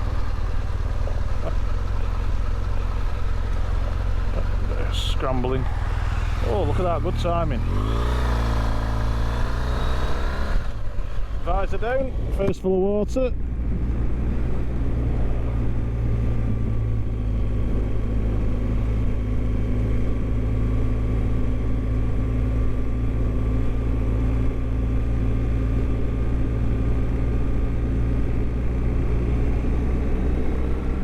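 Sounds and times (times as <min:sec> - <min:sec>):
motorcycle engine drone: 0:00.0 - 0:31.0
wind rush on microphone: 0:13.6 - 0:18.4.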